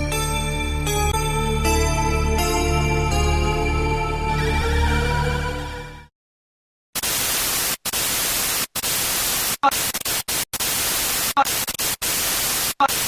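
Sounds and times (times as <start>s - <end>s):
loud static hiss: 7.0s - 13.0s.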